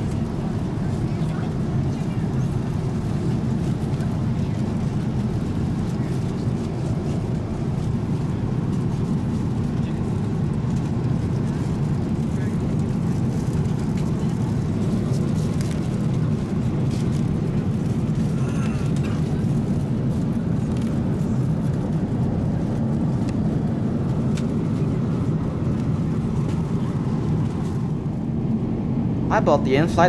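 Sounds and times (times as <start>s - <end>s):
airplane cabin roar: 0.0s - 30.0s.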